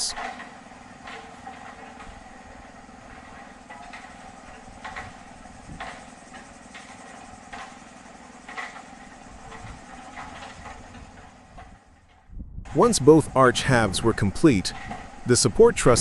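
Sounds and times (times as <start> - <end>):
metal clanks and knocks: 0.0 - 12.4
machinery engine humming: 0.0 - 16.0.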